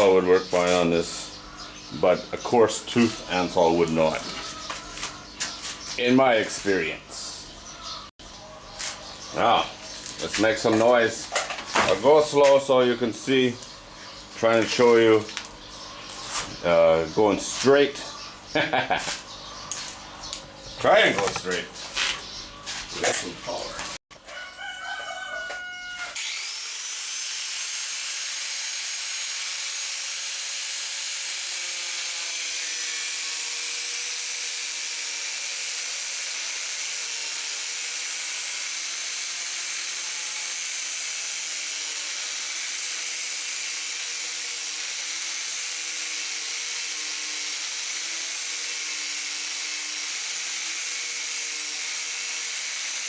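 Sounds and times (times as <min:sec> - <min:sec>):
angle grinder whine: 0:00.0 - 0:07.8, 0:08.8 - 0:24.0, 0:24.8 - 0:53.0.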